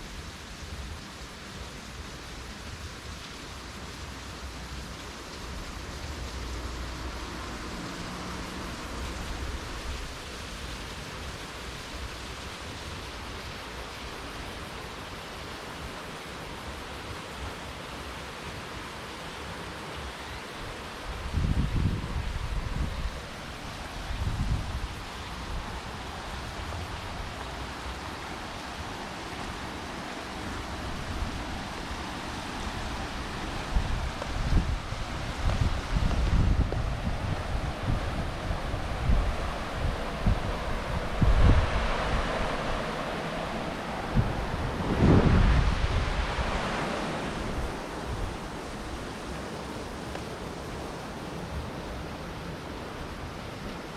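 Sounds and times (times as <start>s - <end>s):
river flowing: 0.0s - 53.9s
steady rushing outdoor noise: 0.0s - 53.9s
wind buffeting microphone: 21.1s - 28.0s, 30.7s - 51.8s.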